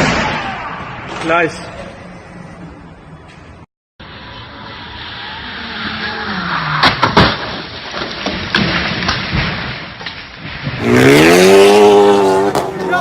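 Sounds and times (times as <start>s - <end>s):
sharp loud bangs: 0.0s - 1.6s
tyre and road noise: 0.0s - 13.0s
car engine revving: 10.8s - 13.0s.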